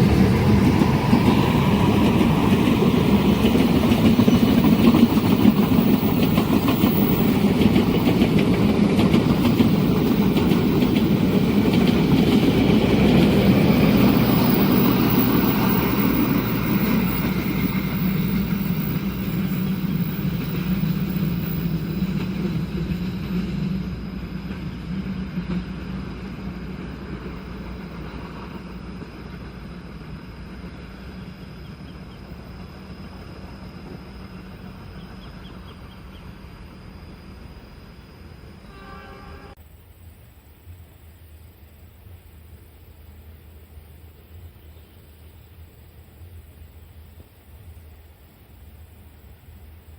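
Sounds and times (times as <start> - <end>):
train rumbling past on rails: 0.0 - 39.6.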